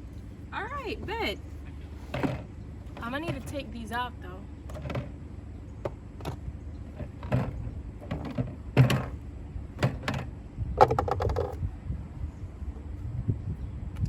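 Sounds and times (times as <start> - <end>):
plastic bottles knocking and rattling: 2.0 - 3.6, 4.7 - 5.2, 5.8 - 9.2, 9.8 - 11.6.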